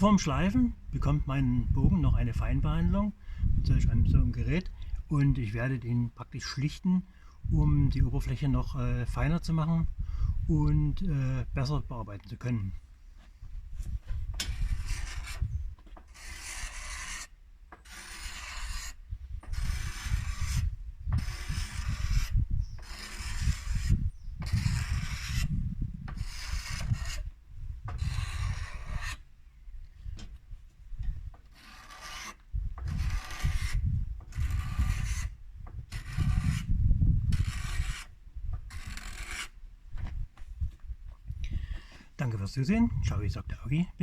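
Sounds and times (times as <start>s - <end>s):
hand tool scraping wood: 13.0s - 29.3s, 31.1s - 40.2s.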